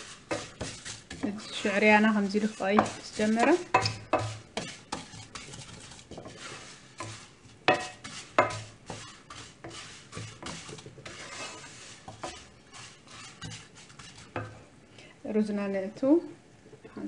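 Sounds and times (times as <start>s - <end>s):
spoon scraping a cooking pot: 0.0s - 14.7s
faint sizzle: 0.0s - 17.0s
spoon clinking against a pot: 3.6s - 4.3s, 7.7s - 8.6s.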